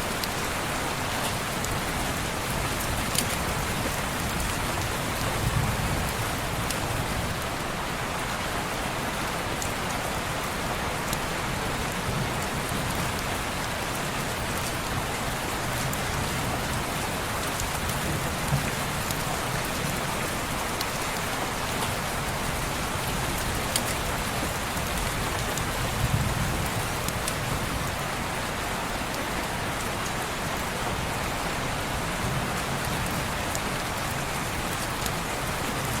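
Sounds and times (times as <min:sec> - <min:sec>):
rain pattering on window: 0:11.0 - 0:36.0.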